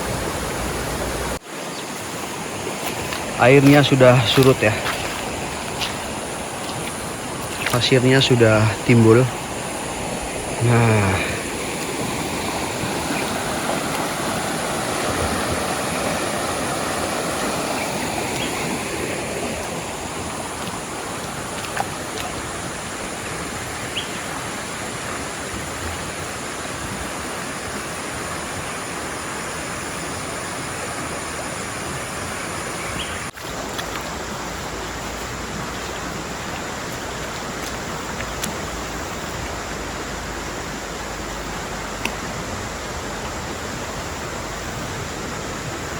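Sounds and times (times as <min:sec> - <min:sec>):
river water flowing: 0:00.0 - 0:45.9.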